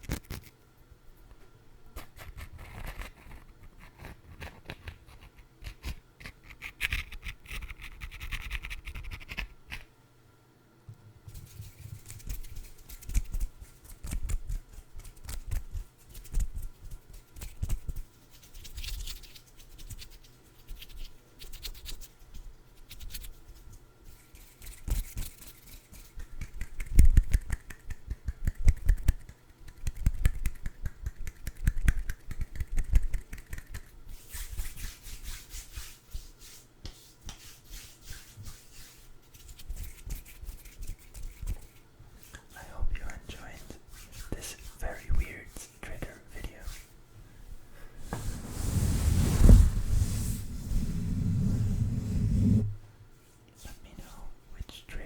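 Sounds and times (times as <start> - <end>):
hands tapping and scratching food: 11.4 - 20.2, 24.4 - 34.0
rubbing hiss: 47.9 - 52.8.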